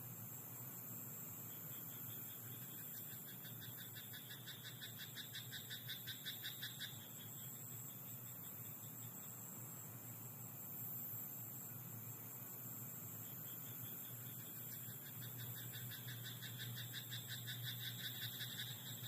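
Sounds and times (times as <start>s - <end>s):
steady high hiss: 0.0s - 19.0s
frog croaking: 1.9s - 7.4s, 13.5s - 19.0s.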